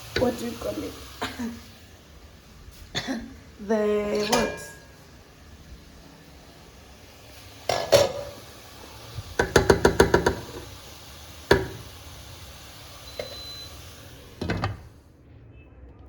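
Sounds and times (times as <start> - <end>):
pots and dishes clinking: 0.1 - 0.5, 3.0 - 5.5, 7.3 - 12.0, 13.0 - 14.9.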